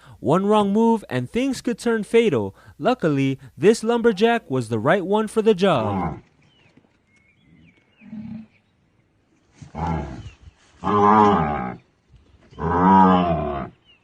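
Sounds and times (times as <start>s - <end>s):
cow bellowing: 5.7s - 6.2s, 9.7s - 11.8s, 12.6s - 13.8s
cow grunting low: 5.8s - 6.2s, 8.0s - 8.6s, 9.6s - 11.8s, 12.5s - 13.8s.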